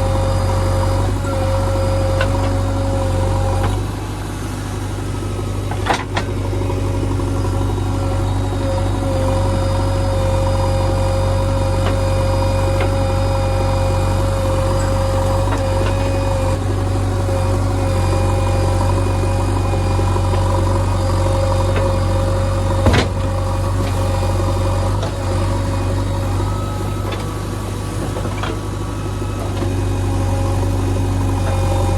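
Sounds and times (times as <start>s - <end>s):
diesel engine running: 0.0s - 31.9s
steady whine: 0.0s - 31.9s.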